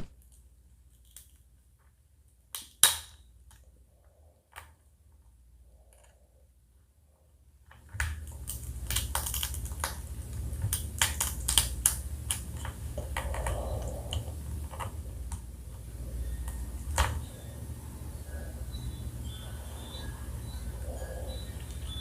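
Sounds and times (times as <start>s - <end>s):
crab shell cracking and crunching: 0.0s - 1.4s, 7.8s - 15.4s.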